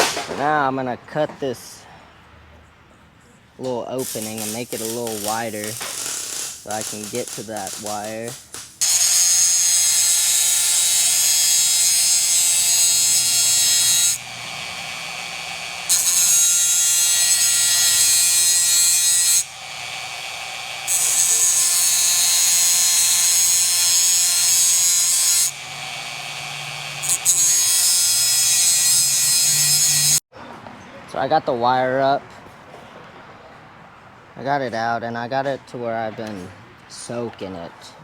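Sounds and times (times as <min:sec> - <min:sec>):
angle grinder cutting metal: 0:04.0 - 0:30.2.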